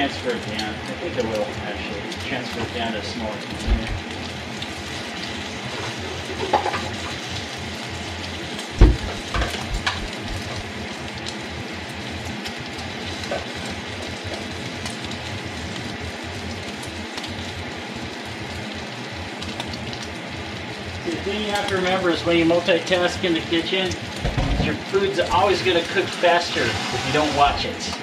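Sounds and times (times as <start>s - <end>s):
food sizzling in a pan: 0.0s - 28.0s
clattering knocks: 8.8s - 10.5s, 24.2s - 24.8s.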